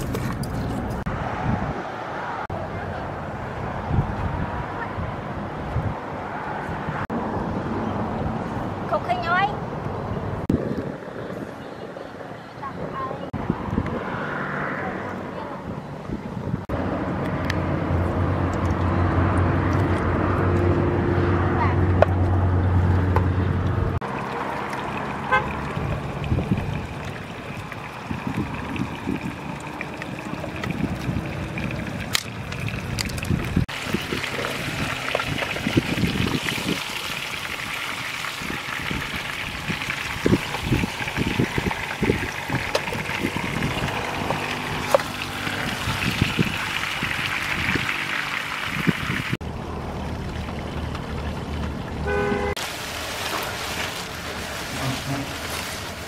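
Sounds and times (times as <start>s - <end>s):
chicken sizzling in oil: 33.7s - 49.4s, 52.6s - 56.0s
plastic rustling: 52.7s - 56.0s.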